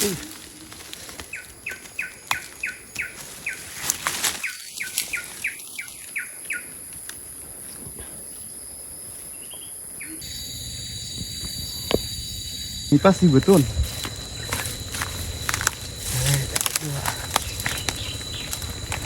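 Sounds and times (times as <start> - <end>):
steady high hiss: 10.0 - 19.0.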